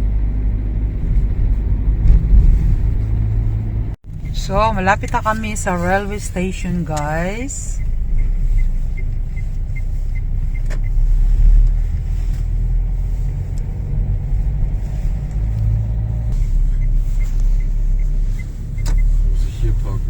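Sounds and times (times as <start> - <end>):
car cabin road and engine rumble: 0.0 - 20.0
faint regular ticking: 4.1 - 12.0.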